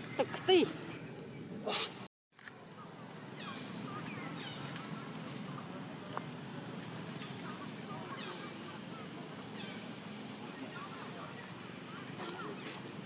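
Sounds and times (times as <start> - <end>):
monkeys calling: 0.0 - 2.0.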